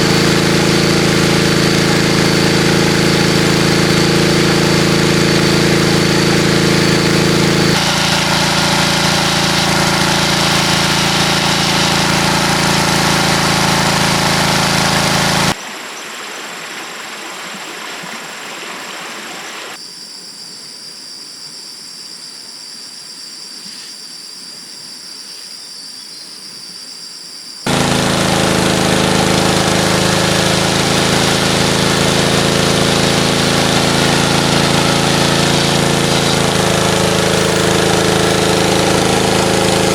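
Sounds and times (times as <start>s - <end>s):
small engine running: 0.0s - 15.6s, 27.6s - 39.9s
steady hiss with high tone: 18.9s - 27.6s, 37.4s - 38.4s.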